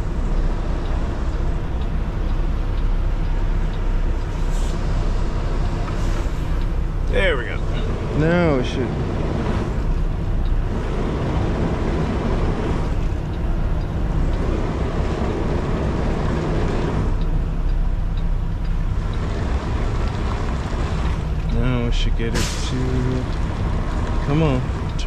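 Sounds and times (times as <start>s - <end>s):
truck diesel engine rumbling: 0.0s - 25.0s.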